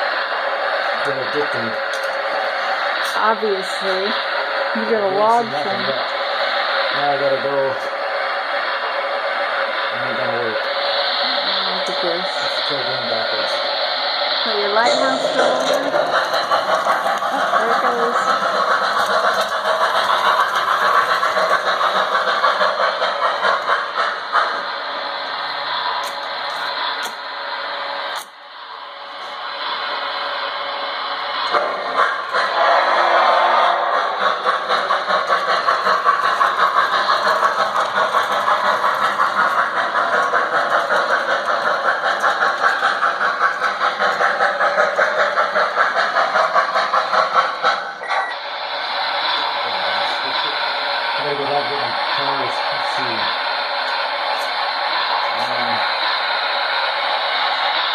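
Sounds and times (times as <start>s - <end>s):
model train rattling on track: 0.0s - 57.9s.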